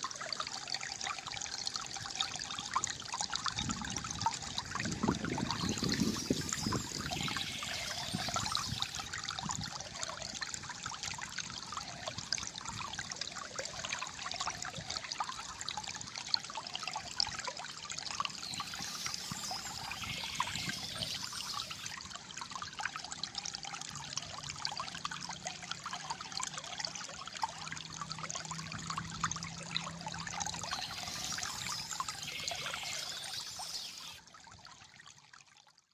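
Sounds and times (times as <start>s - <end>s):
water trickling over stones: 0.0s - 35.9s
birds chirping: 5.4s - 9.0s, 18.3s - 21.9s, 30.6s - 34.2s.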